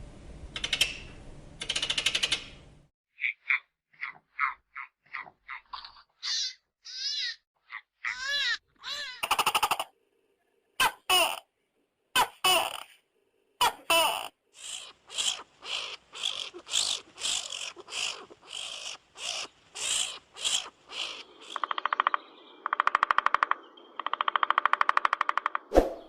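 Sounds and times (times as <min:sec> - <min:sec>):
harsh animal calls: 0:03.2 - 0:09.9, 0:14.1 - 0:25.2
fast rattling pulses: 0:14.6 - 0:21.9.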